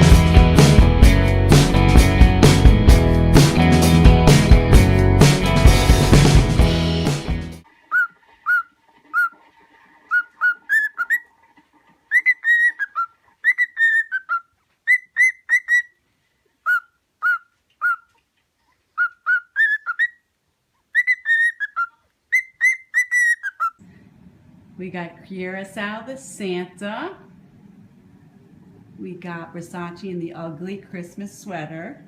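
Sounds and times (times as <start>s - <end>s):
parrot whistling a tune: 7.9s - 9.3s, 12.1s - 15.9s, 16.7s - 18.0s, 19.0s - 20.2s, 20.9s - 23.8s.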